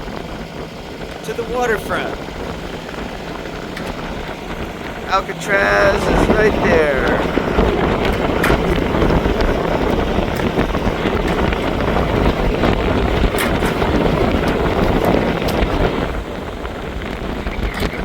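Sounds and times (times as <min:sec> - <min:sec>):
waves rushing around hull: 0:00.0 - 0:18.0
wind buffeting microphone: 0:00.0 - 0:18.0.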